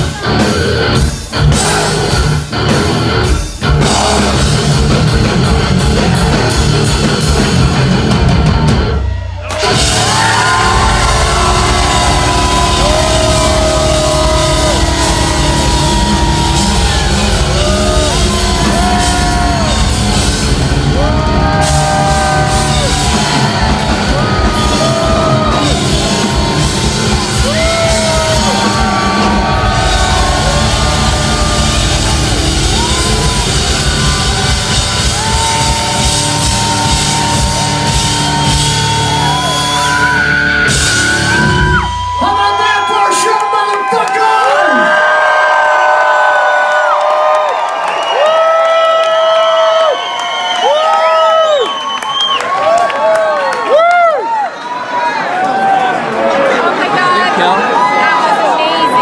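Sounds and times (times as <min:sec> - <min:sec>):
heavy metal band playing: 0:00.0 - 0:43.3
electric guitar lead bending notes: 0:09.6 - 0:42.0.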